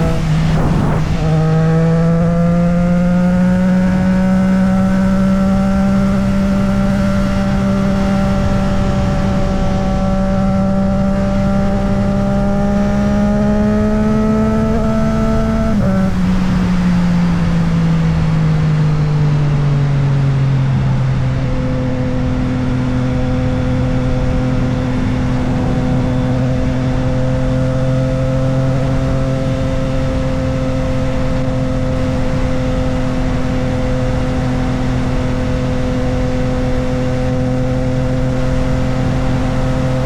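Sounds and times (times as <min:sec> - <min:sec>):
wind rush: 0:00.0 - 0:04.6, 0:21.3 - 0:40.0
motorcycle engine: 0:00.0 - 0:40.0.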